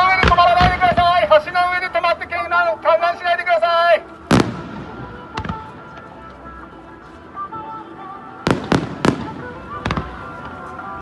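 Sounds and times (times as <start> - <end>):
background music: 0.0 - 11.0
fireworks bursting: 4.3 - 5.8, 8.4 - 10.6.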